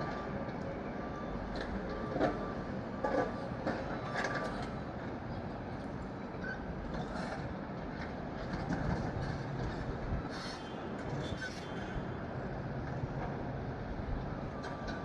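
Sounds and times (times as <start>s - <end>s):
brief squeal: 10.3s - 12.0s.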